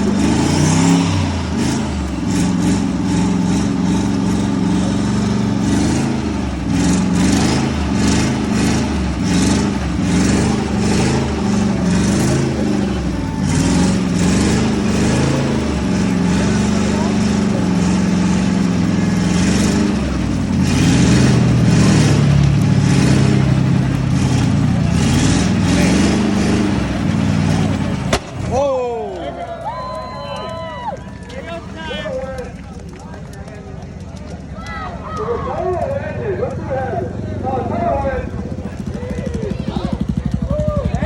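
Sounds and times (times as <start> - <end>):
car engine revving: 0.0 - 29.6.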